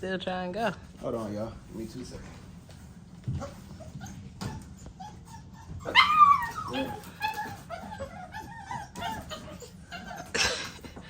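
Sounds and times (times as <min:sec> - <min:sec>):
puppy whining and yelping: 0:03.3 - 0:11.0.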